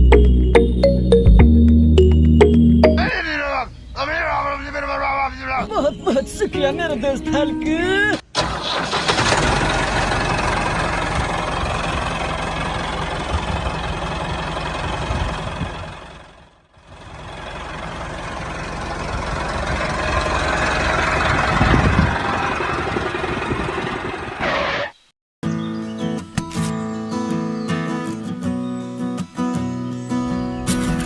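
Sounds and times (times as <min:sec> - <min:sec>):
engine running: 0:08.4 - 0:25.0.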